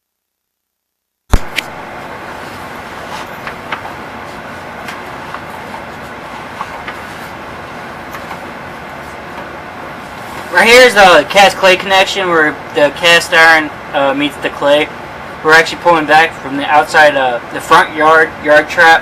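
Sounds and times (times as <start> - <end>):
loud pop: 1.3 - 1.7.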